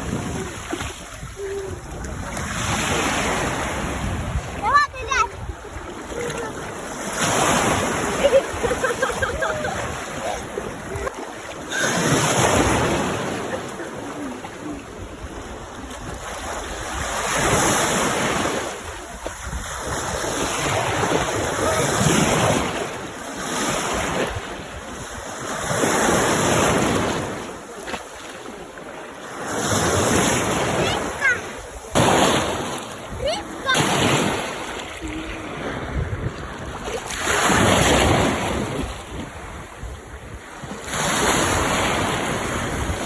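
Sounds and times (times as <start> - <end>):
sea waves washing in: 0.0 - 43.0.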